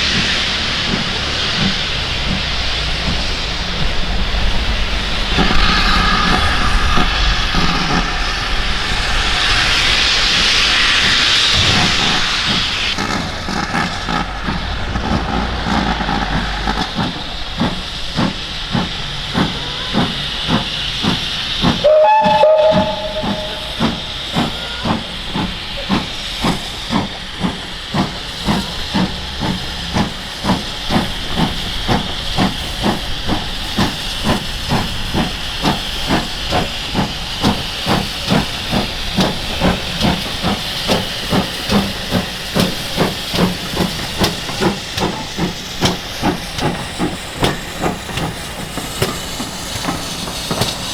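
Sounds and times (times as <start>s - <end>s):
locomotive exhaust chuffs: 0.0s - 50.9s
steam hissing: 0.0s - 50.9s
train whistle blast: 21.8s - 25.1s.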